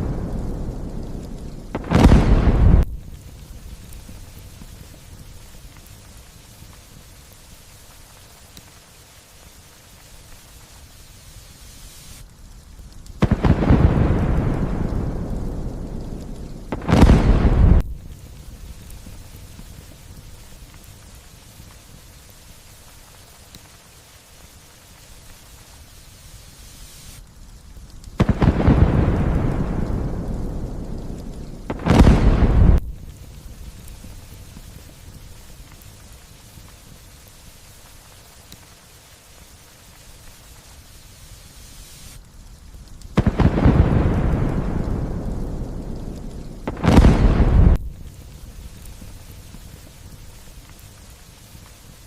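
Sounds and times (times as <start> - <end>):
thunderclap rumbling: 0.0 - 5.6, 13.2 - 20.1, 28.2 - 35.8, 43.2 - 50.1
light rain hiss: 0.0 - 52.0.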